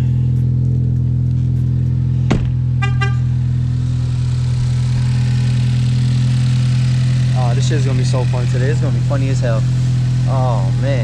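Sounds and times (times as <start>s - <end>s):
car engine idling: 0.0s - 11.0s
short horn-like beeps: 2.8s - 3.3s.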